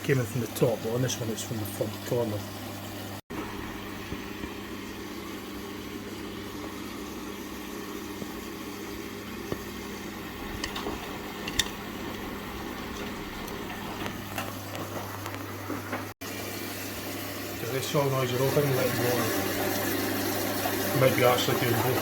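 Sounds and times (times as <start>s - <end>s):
washing machine electrical hum: 0.0s - 22.0s.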